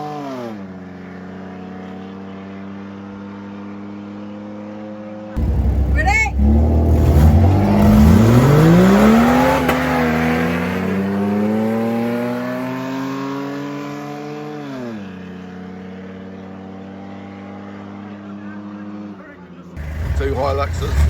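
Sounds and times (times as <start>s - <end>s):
engine revving at full throttle: 5.4s - 19.2s, 19.8s - 21.0s.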